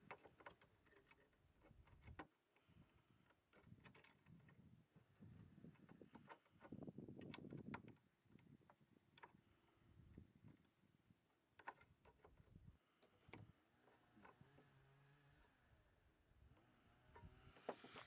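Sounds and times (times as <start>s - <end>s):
faint knocks and clicks: 0.0s - 10.8s, 11.4s - 14.7s.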